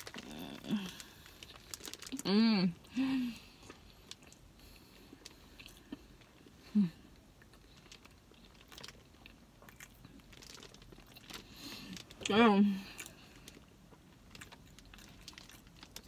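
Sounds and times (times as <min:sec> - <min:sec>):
small crunches and mouth clicks: 0:00.0 - 0:02.3, 0:03.5 - 0:06.6, 0:07.2 - 0:16.0
person chewing: 0:03.4 - 0:16.0.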